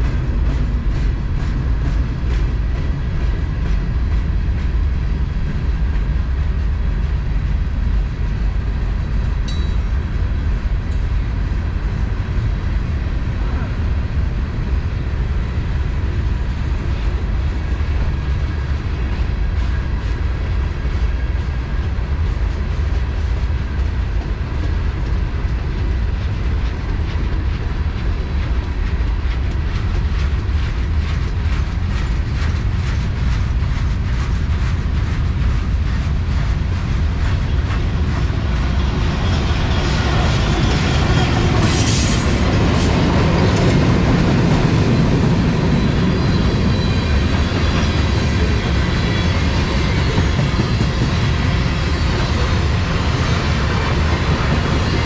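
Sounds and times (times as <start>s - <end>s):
freight train rumbling: 0.0s - 55.0s
wheels clicking on rail joints: 22.2s - 55.0s.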